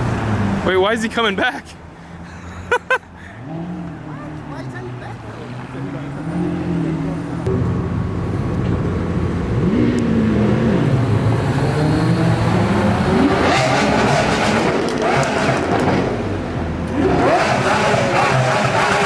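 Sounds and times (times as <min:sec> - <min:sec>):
car engine revving: 0:03.4 - 0:19.0.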